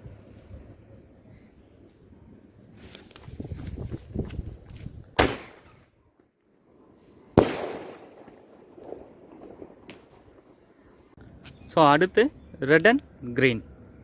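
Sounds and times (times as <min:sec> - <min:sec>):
firework launch report: 0:05.1 - 0:06.0, 0:07.2 - 0:13.6
firework burst echoing: 0:05.2 - 0:05.9, 0:07.4 - 0:10.6.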